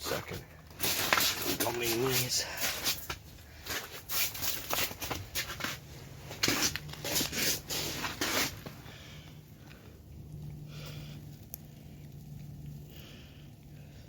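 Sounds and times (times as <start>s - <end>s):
handling scuffs and rustles: 0.7s - 8.8s
faint low hum: 2.5s - 14.0s.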